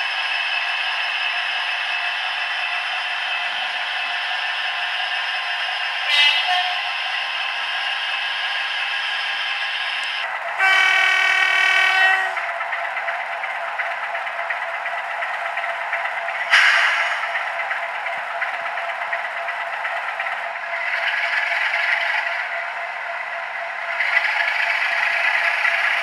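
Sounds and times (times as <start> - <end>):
locomotive horn: 6.1 - 6.8, 10.6 - 12.4.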